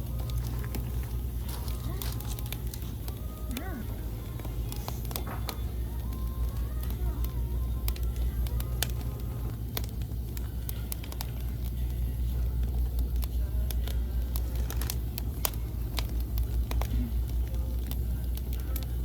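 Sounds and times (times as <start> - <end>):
low rumble: 0.0 - 19.0
wood fire crackling and popping: 0.0 - 19.0.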